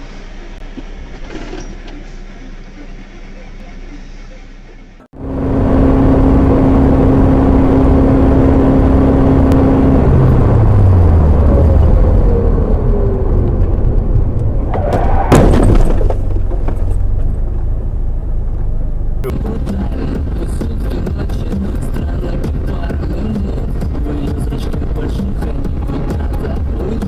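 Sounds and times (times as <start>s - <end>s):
car engine on road: 0.0s - 27.0s
crash with breaking sounds: 15.3s - 16.4s.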